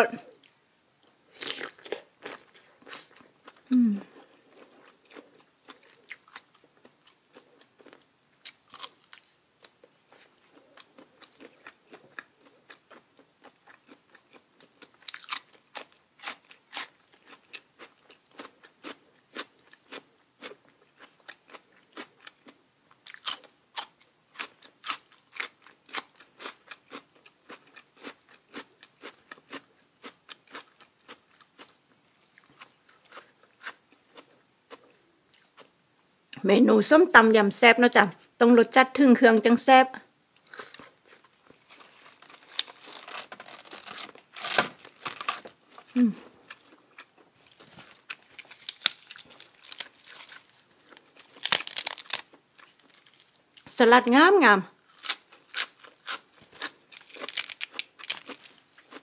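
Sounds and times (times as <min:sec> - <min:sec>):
chewing crisp raw vegetables: 0:00.0 - 0:36.4, 0:40.4 - 0:53.7, 0:54.8 - 0:59.0.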